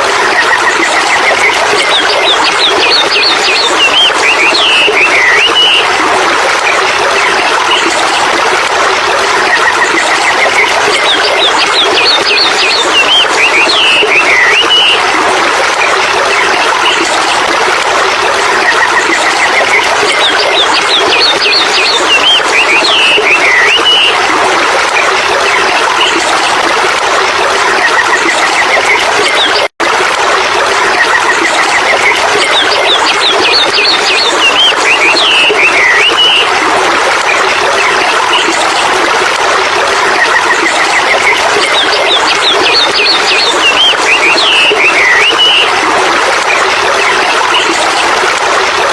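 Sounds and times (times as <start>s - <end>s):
birds chirping and warbling: 41.0s - 45.7s.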